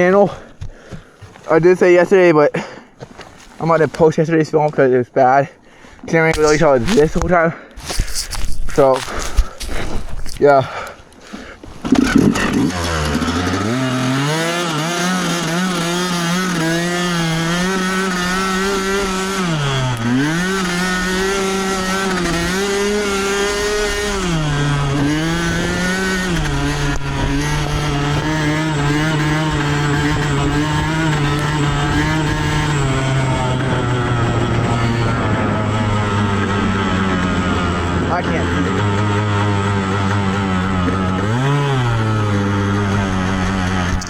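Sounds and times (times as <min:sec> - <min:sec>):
dirt bike engine revving high: 0:11.8 - 0:44.0.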